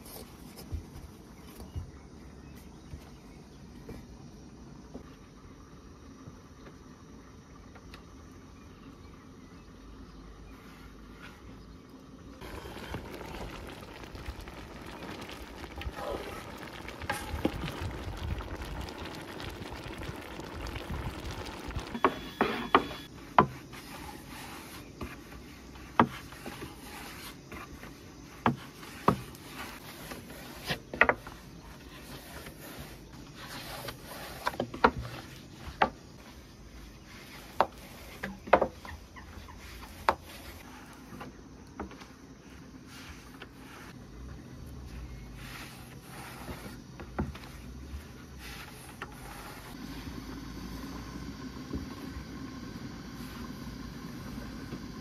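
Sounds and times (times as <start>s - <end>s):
low steady noise: 11.7s - 23.2s.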